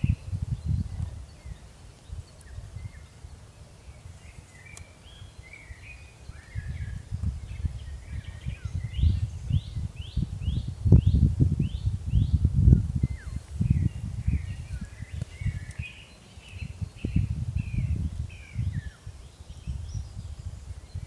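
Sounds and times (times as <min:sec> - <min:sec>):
small birds chirping: 0:00.0 - 0:21.0
wind buffeting microphone: 0:00.0 - 0:21.0.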